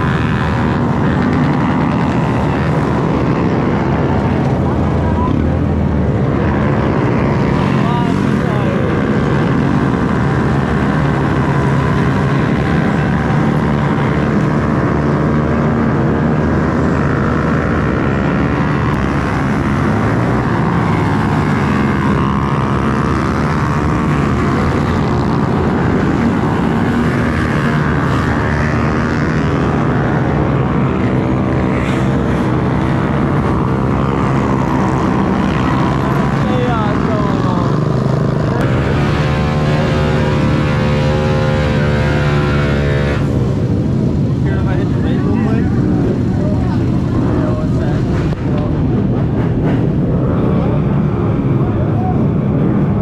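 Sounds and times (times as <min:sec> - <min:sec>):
small motorbike engines revving: 0:00.0 - 0:53.0.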